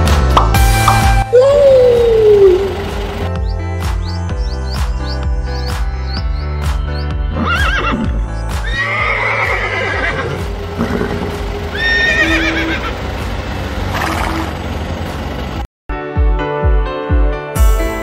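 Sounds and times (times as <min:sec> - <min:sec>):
background music: 0:00.0 - 0:14.0, 0:15.9 - 0:18.0
horse whinnying: 0:07.4 - 0:12.9.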